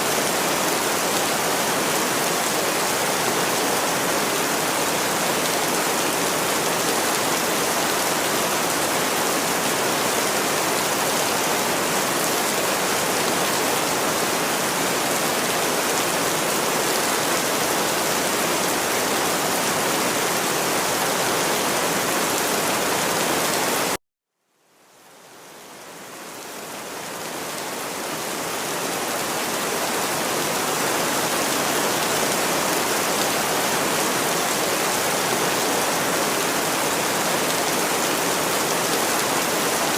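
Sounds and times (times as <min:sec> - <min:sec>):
steady rain hiss: 0:24.6 - 0:39.9.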